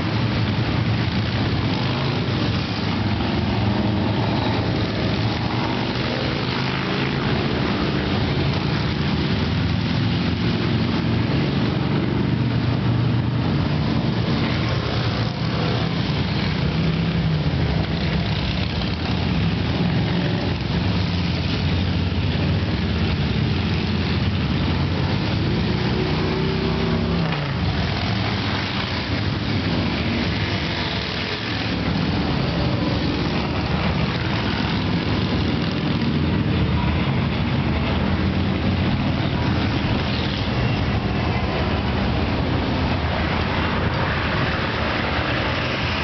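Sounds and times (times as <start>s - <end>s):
motorcycles riding past: 0.0s - 46.0s.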